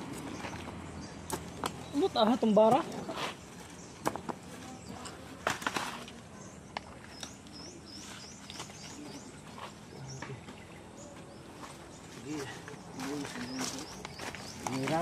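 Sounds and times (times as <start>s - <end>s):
small bird chirping: 6.3s - 15.0s.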